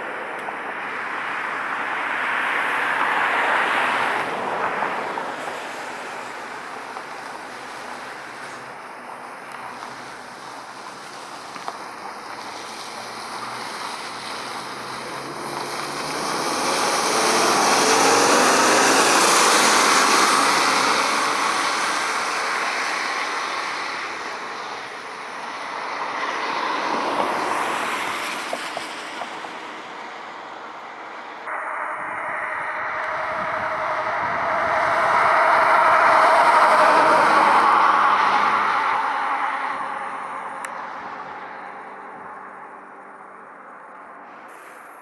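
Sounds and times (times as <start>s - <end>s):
vehicle passing by: 11.1s - 44.2s.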